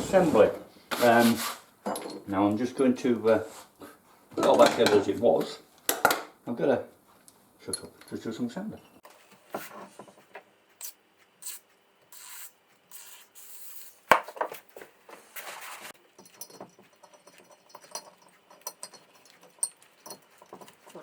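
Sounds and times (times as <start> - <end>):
sandpaper rasping strokes: 0.0 - 1.6.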